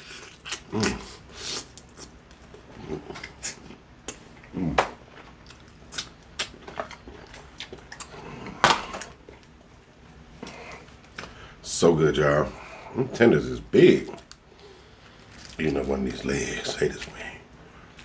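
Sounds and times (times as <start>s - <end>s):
chewing and crunching: 0.0s - 9.6s, 14.0s - 17.3s.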